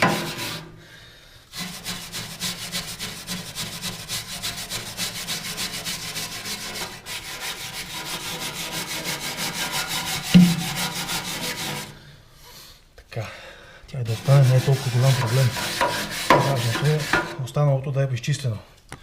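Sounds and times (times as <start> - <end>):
scraper scraping metal: 1.5 - 12.0, 14.1 - 17.4.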